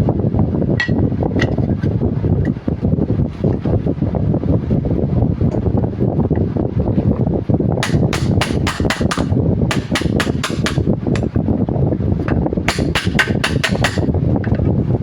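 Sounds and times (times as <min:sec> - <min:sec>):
low rumble: 0:00.0 - 0:15.0
hammer striking metal: 0:07.8 - 0:11.3, 0:12.7 - 0:14.1.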